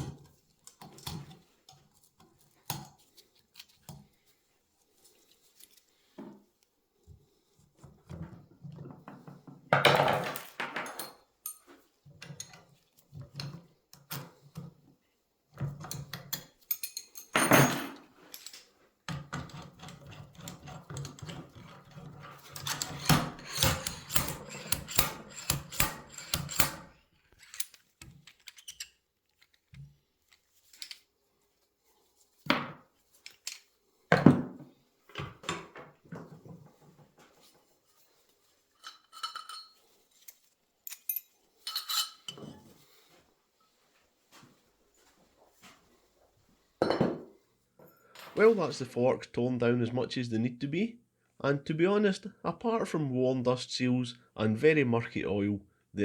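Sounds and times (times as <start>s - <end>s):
metal parts knocking and clinking: 9.8s - 12.6s, 15.8s - 29.5s, 38.8s - 42.6s.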